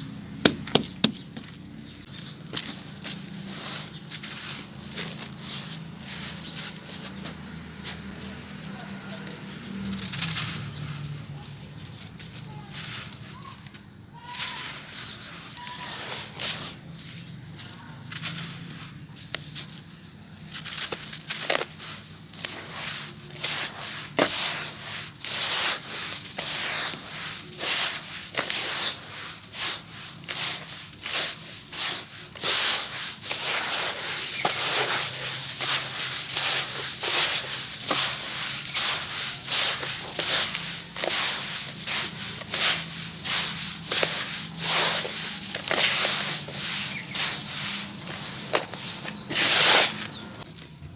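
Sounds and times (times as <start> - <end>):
sand-cement crumbling and crunching: 0.0 - 50.9.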